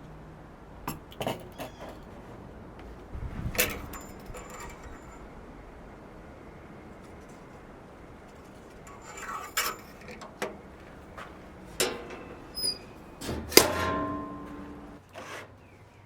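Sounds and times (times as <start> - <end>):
metal objects clanking: 3.5 - 5.2, 8.9 - 15.0.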